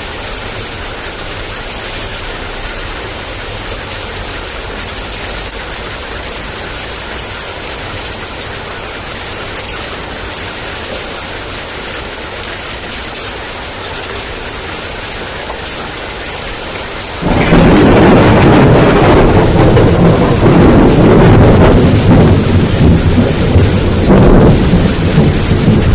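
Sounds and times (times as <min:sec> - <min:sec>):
heavy rain: 0:00.0 - 0:25.9
thunder clap and rumble: 0:15.0 - 0:25.9.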